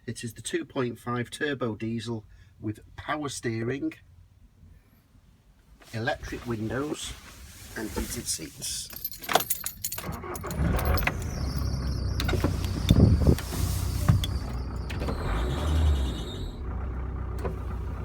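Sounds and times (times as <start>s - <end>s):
diesel engine starting and idling: 10.0s - 18.0s.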